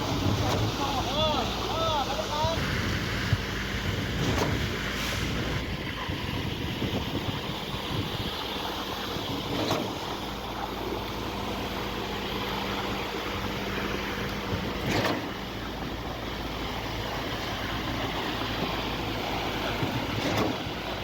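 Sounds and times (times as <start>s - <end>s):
concrete pump running: 0.0s - 21.0s
wind on microphone: 2.6s - 8.5s.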